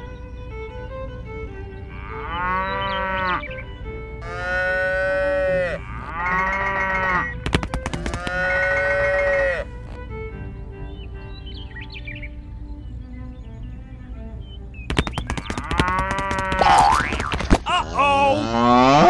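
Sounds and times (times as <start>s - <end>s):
background music: 0.0s - 19.0s
cow mooing: 1.9s - 3.4s, 4.2s - 7.3s, 8.2s - 9.7s, 18.2s - 19.0s.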